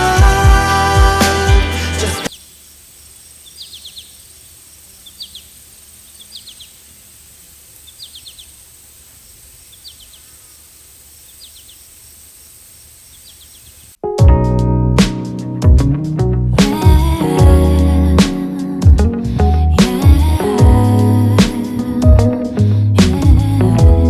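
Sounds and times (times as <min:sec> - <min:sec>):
loud background music: 0:00.0 - 0:02.3
faint steady hiss: 0:02.2 - 0:14.0.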